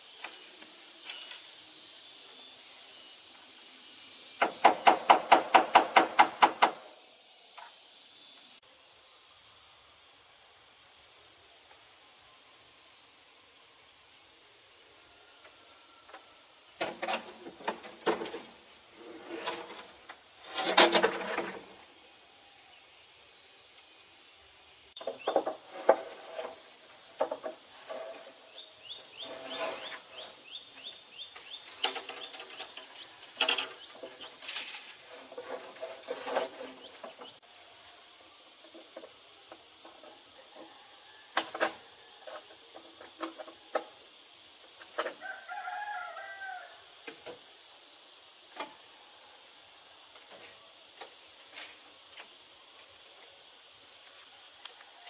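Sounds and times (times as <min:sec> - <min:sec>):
high insect buzz: 0:00.0 - 0:55.0
rooster crowing: 0:15.0 - 0:16.6, 0:40.4 - 0:42.2, 0:45.1 - 0:46.9
sharp knocks and clatter: 0:25.0 - 0:26.6, 0:27.2 - 0:28.2.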